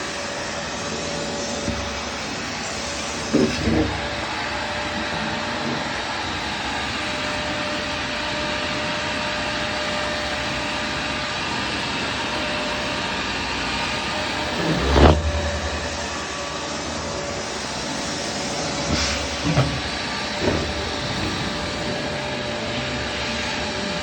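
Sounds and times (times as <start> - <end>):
vacuum cleaner running: 0.0 - 24.0
bump: 1.4 - 6.1, 14.2 - 23.6
deep rumble: 14.3 - 17.9.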